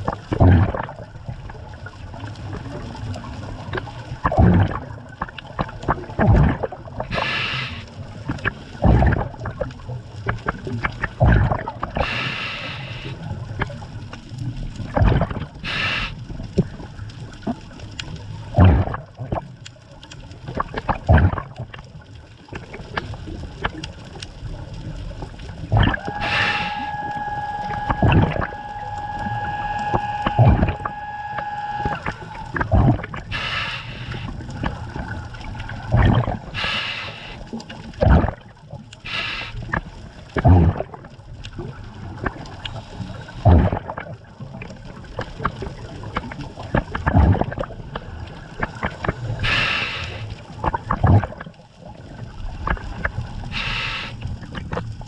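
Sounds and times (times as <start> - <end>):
exhaled bubbles gurgling: 0.0 - 55.0
scuba regulator breathing underwater: 7.1 - 8.0, 11.9 - 13.3, 15.6 - 16.3, 25.7 - 35.0, 35.6 - 38.2, 39.0 - 39.8, 49.2 - 50.6, 53.4 - 54.4
steady humming tone: 25.7 - 37.4.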